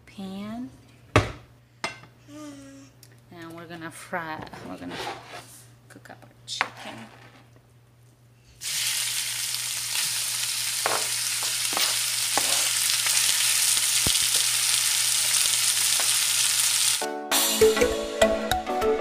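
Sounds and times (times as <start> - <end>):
chicken sizzling in frying pan: 8.6 - 17.0
music: 17.0 - 19.0.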